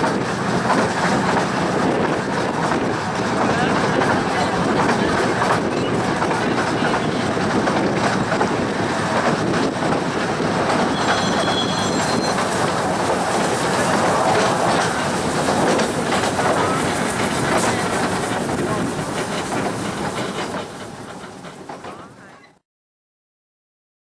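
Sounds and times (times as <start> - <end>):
train wheels clattering over rails: 0.0 - 22.5
high wheel squeal: 10.4 - 18.4.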